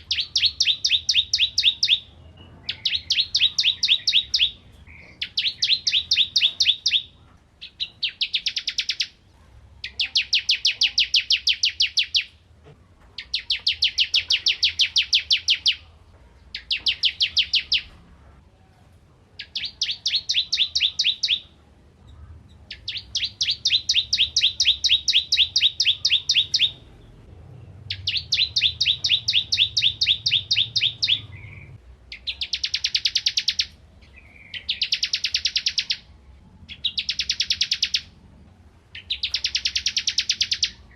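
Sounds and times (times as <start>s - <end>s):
bird singing fast high trills: 0.0s - 9.2s, 9.9s - 12.3s, 19.4s - 21.5s, 22.7s - 26.9s, 27.9s - 36.1s, 36.7s - 38.1s, 38.9s - 40.9s.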